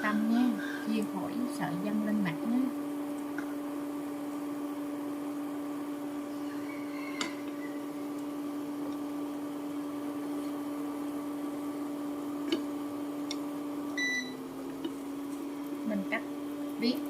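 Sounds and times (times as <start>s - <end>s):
kitchen appliance humming: 0.0s - 17.0s.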